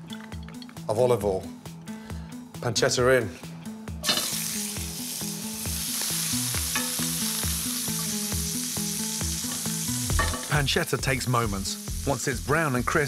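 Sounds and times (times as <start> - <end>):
background music with beat: 3.4 - 13.0
pancetta sizzling in oil: 4.0 - 13.0.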